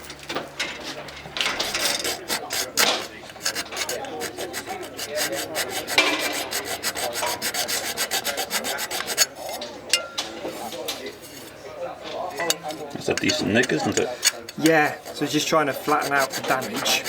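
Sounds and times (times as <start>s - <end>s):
hand file rasping on metal blade: 1.4s - 9.6s, 12.6s - 17.0s.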